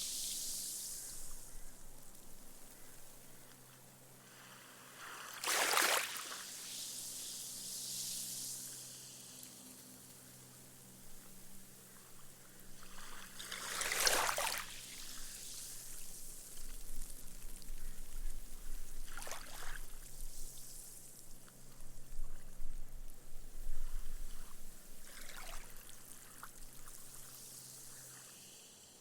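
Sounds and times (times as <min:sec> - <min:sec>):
waves washing up a beach: 0:04.2 - 0:09.5, 0:12.8 - 0:16.1
foam fizzing: 0:04.3 - 0:10.4.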